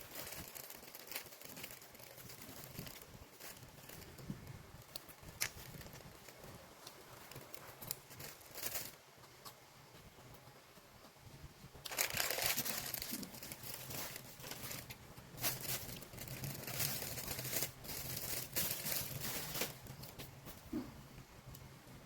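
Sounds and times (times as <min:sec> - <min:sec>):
bread crinkling and tearing: 0:00.0 - 0:09.0, 0:11.8 - 0:20.3.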